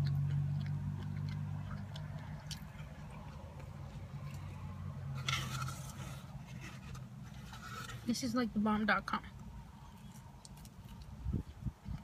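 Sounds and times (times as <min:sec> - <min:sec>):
wet mouth clicks: 0:00.0 - 0:04.5
chewing and biting food: 0:00.0 - 0:08.0, 0:09.5 - 0:12.0.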